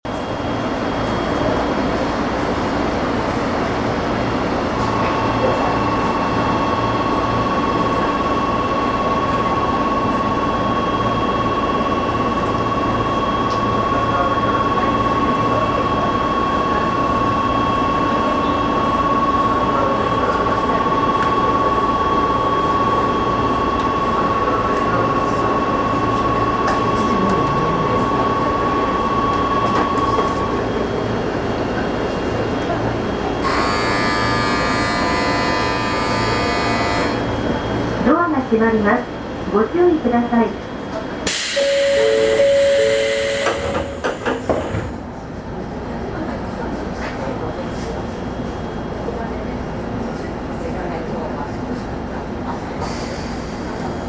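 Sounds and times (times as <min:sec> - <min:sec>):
electric train equipment hum: 0:00.2 - 0:45.5
steady high tone: 0:41.5 - 0:44.2.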